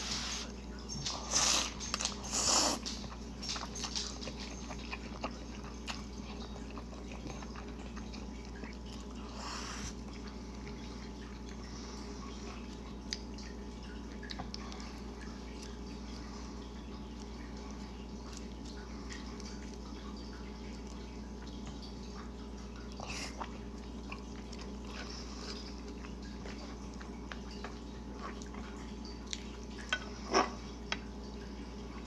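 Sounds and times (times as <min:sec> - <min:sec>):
wet chewing: 0:00.0 - 0:32.0.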